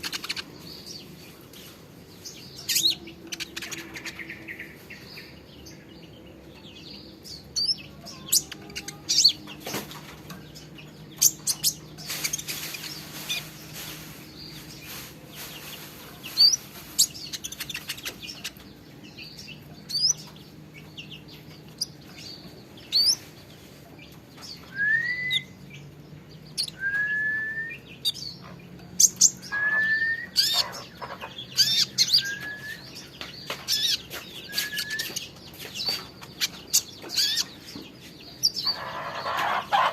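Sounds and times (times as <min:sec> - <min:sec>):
songbird chirping: 0:00.0 - 0:39.9
bird upslurred whistles: 0:24.7 - 0:25.5, 0:29.5 - 0:30.6.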